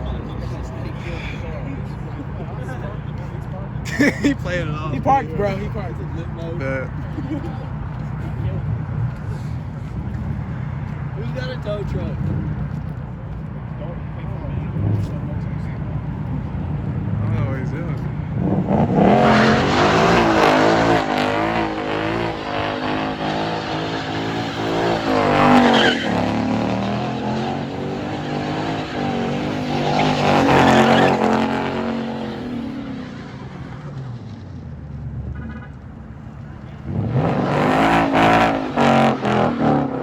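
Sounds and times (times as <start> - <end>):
tires squealing: 0.0 - 40.0
car engine revving hard: 16.4 - 33.9, 36.8 - 40.0.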